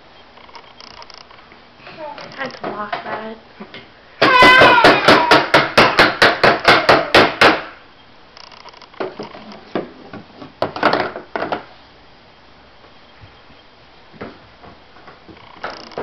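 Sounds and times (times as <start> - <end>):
hammer blows: 4.2 - 7.8.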